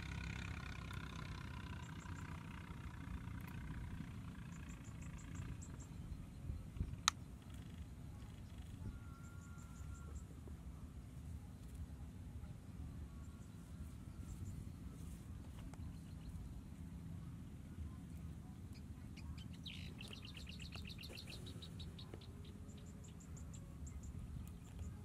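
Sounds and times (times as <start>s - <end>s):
songbird singing: 0.0s - 25.0s
steady low rumble: 0.0s - 25.0s
faint high chirps: 4.4s - 10.6s, 17.8s - 25.0s.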